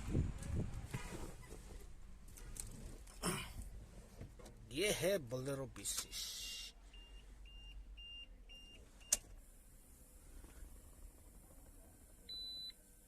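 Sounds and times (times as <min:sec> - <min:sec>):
dashboard warning chime beeping: 0:06.0 - 0:09.2.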